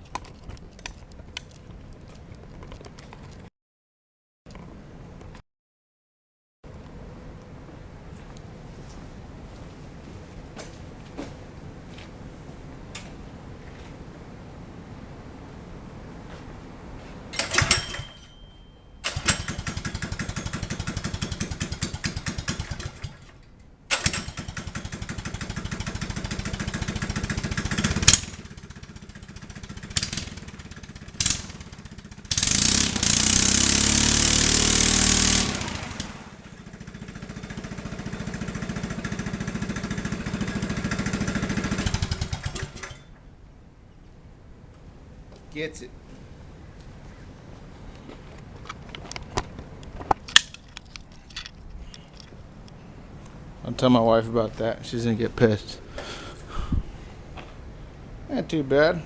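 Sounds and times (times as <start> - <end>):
single-cylinder engine revving: 19.1 - 43.1.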